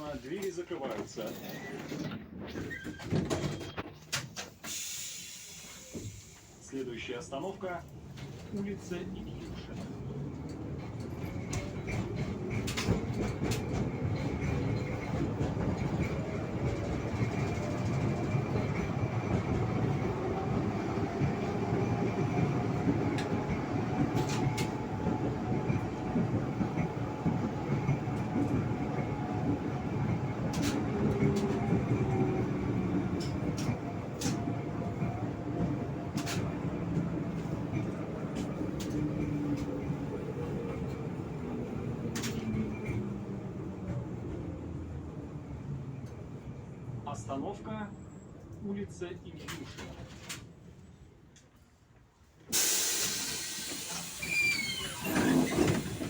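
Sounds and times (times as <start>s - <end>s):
wheels clicking over rails: 7.9s - 44.0s, 52.5s - 56.0s
tram motor whine: 9.9s - 46.9s, 52.5s - 56.0s.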